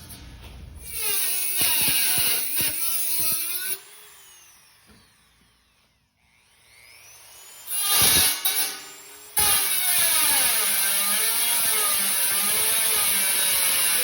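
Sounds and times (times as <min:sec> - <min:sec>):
power cutting tool whining: 0:00.9 - 0:14.0.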